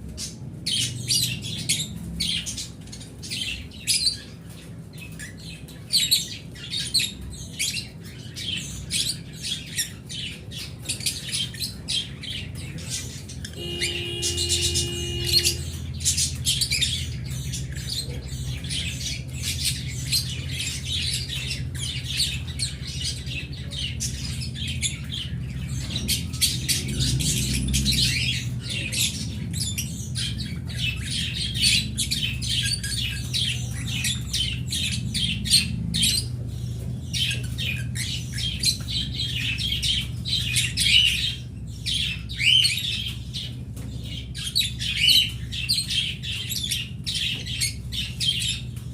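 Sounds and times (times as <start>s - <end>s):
cage birds chirping and squawking: 0.0s - 48.9s
steady low hum: 11.8s - 45.6s.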